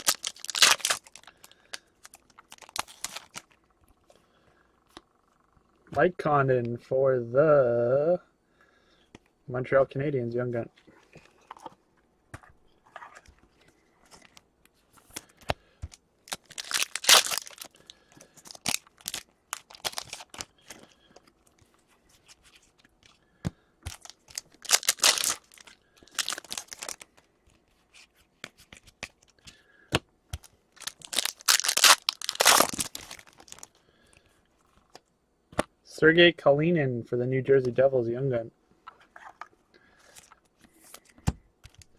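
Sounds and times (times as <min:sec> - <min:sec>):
card pack wrappers tearing: 0:00.0 - 0:03.6, 0:16.2 - 0:20.8, 0:23.9 - 0:27.1, 0:30.8 - 0:33.8.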